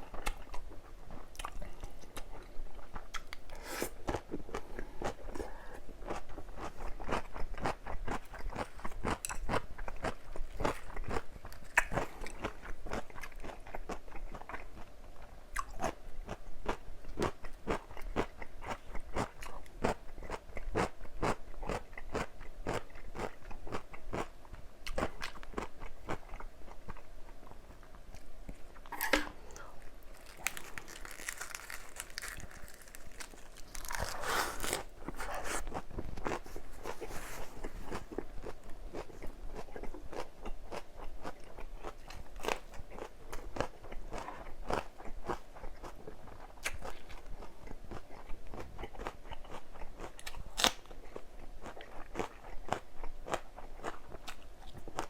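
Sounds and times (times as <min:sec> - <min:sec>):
person chewing crunchy food: 0:00.0 - 0:55.0
wet crunches: 0:30.1 - 0:34.9.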